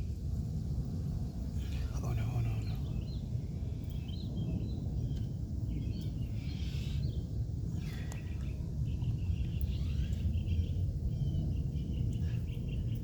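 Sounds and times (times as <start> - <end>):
low rumble: 0.0 - 13.0
bird chirps: 7.8 - 13.0.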